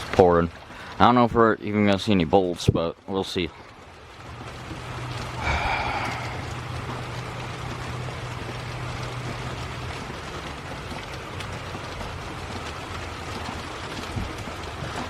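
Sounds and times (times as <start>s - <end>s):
heavy rain pouring: 0.0s - 15.0s
low steady hum: 0.0s - 15.0s.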